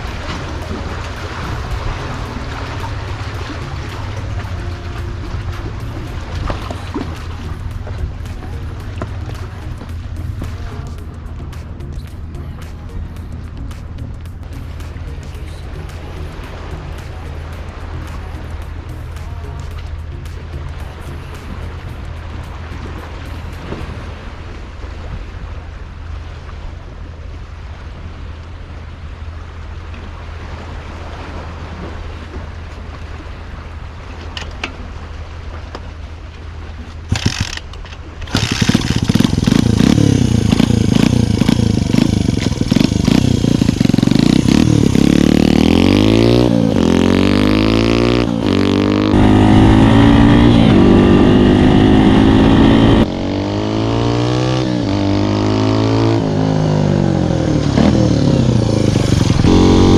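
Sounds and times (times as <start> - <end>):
motorcycle engine accelerating: 0.0 - 22.1, 37.1 - 37.6, 38.2 - 59.9.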